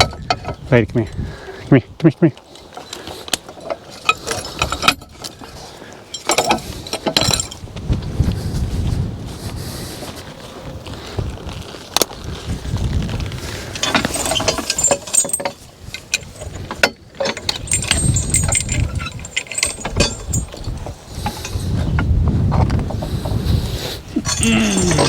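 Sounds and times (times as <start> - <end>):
harness chains clinking and jingling: 6.1 - 7.6, 13.8 - 21.6, 24.2 - 25.0.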